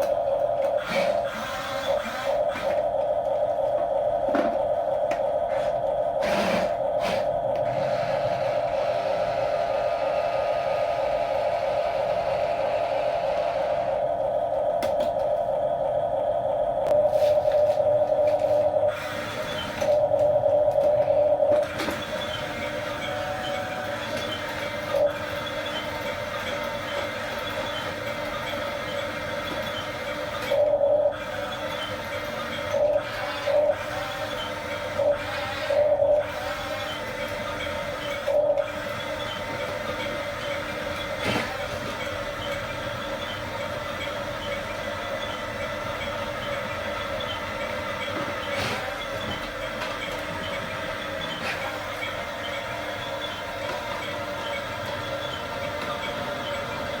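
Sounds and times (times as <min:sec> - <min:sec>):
toy electric motors whirring: 0:00.0 - 0:02.9, 0:06.2 - 0:13.9, 0:29.6 - 0:41.8
toy electric motors whining: 0:00.0 - 0:03.1, 0:05.5 - 0:14.0, 0:17.1 - 0:57.0
short motor whines: 0:00.8 - 0:03.0, 0:05.5 - 0:14.1.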